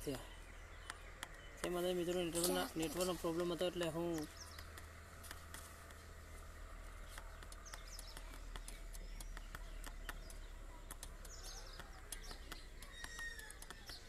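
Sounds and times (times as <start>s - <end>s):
birds chirping: 0.0s - 14.0s
steady low hum: 0.0s - 14.0s
faint clicks: 0.8s - 1.7s, 3.5s - 6.3s, 6.9s - 14.0s.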